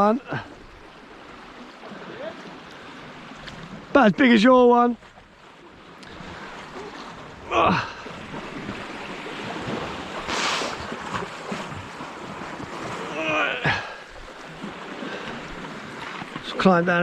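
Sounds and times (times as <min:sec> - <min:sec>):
sea washing against rocks: 0:05.8 - 0:17.0.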